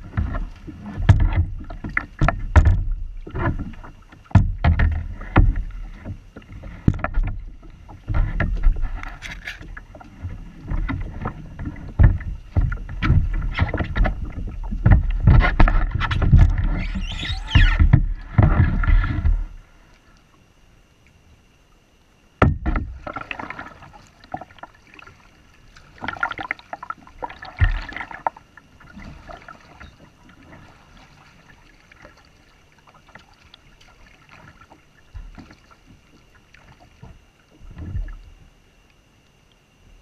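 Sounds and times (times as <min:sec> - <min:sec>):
kayak paddle knocking: 0:00.0 - 0:19.6, 0:22.4 - 0:38.3
faint high-pitched hum: 0:00.0 - 0:40.0
water splashing against hull: 0:00.0 - 0:40.0.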